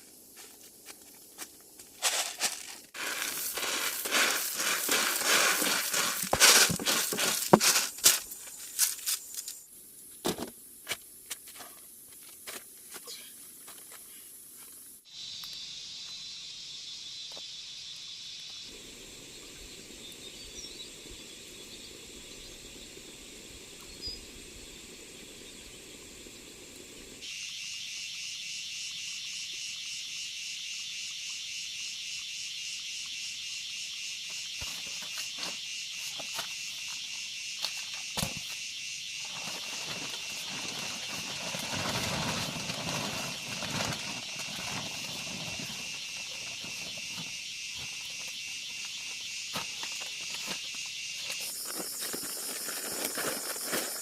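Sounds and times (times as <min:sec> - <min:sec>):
insects trilling: 0:00.0 - 0:54.0
rustling: 0:00.4 - 0:09.6, 0:39.3 - 0:48.3, 0:49.6 - 0:54.0.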